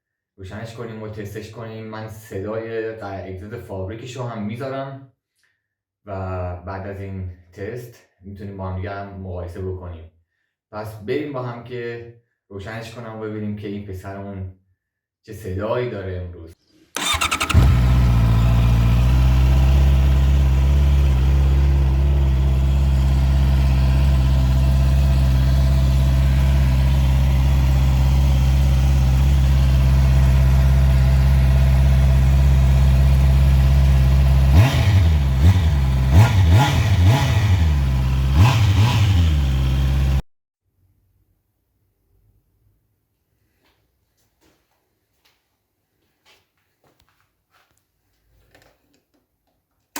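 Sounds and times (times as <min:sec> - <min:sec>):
motorcycle engine idling and revving: 0:17.0 - 0:40.2.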